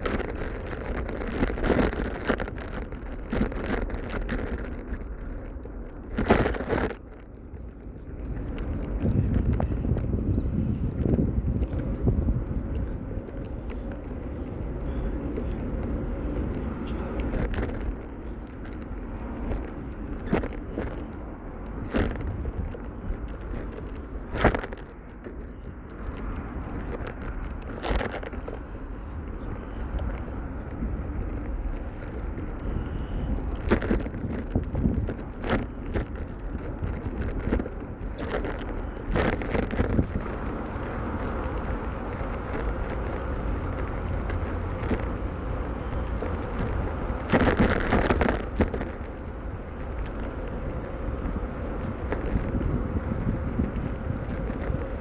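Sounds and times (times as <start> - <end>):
bicycle rolling on road: 0.0 - 55.0.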